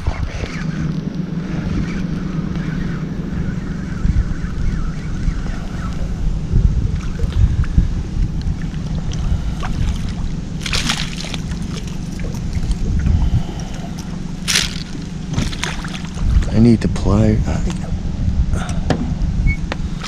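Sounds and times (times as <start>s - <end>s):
water sloshing against a boat: 0.0s - 20.0s
wind rumble on microphone: 0.0s - 20.0s
short water splashes: 8.5s - 16.5s.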